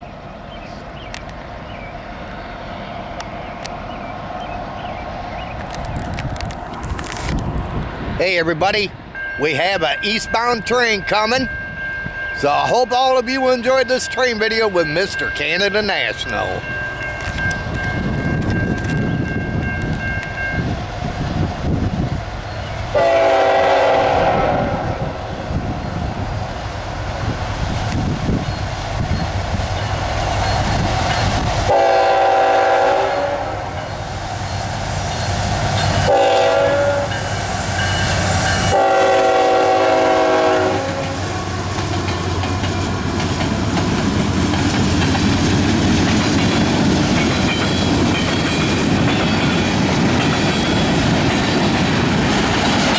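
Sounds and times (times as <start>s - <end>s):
train rumble: 0.0s - 52.9s
clickety-clack of train wheels: 5.5s - 7.6s, 9.6s - 24.6s, 26.7s - 31.8s, 33.7s - 52.9s
locomotive air horn blasts: 23.0s - 25.2s, 31.7s - 33.8s, 36.1s - 37.3s, 38.5s - 41.6s.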